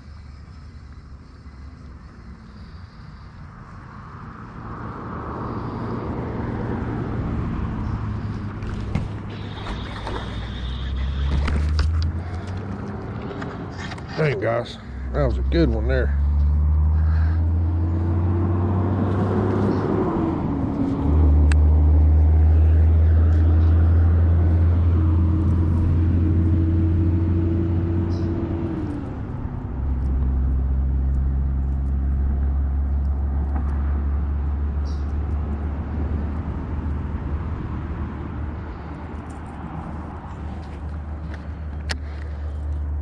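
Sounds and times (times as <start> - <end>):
boat motor humming: 8.0 - 15.9.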